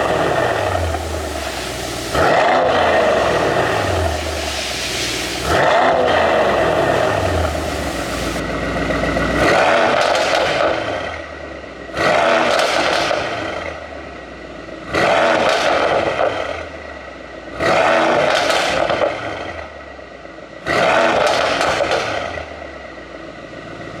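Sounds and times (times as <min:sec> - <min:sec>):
exhaust crackles and pops: 0:00.0 - 0:11.2, 0:12.0 - 0:13.6, 0:15.0 - 0:16.6, 0:17.7 - 0:19.4, 0:20.9 - 0:22.3
car engine revving: 0:00.0 - 0:19.6, 0:20.6 - 0:22.5.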